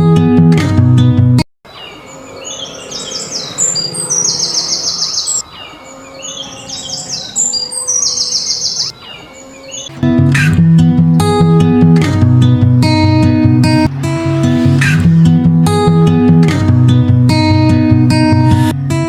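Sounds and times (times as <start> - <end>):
bird chirping with buzzy trill: 1.7 - 10.2.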